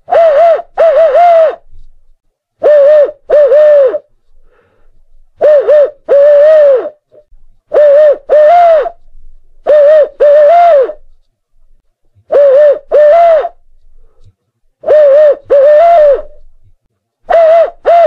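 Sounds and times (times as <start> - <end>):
owl hooting: 0.0 - 1.9, 2.6 - 4.8, 5.4 - 11.1, 12.2 - 13.7, 14.8 - 16.5, 17.3 - 18.0.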